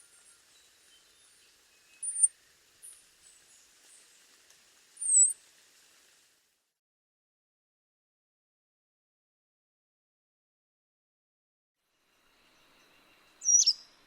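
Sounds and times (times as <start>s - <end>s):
small birds chirping: 0.0s - 4.4s, 5.0s - 5.4s, 12.7s - 14.0s
faint hiss: 0.0s - 6.8s.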